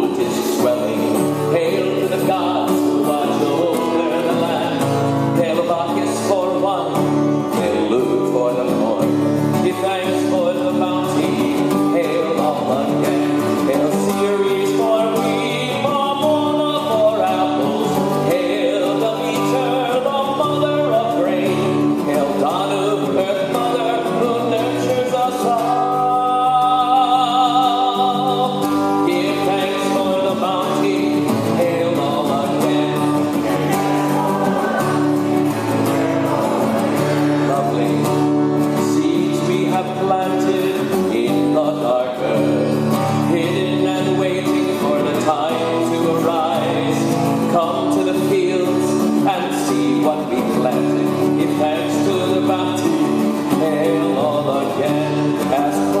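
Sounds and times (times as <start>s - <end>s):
voices singing together: 15.0s - 42.7s.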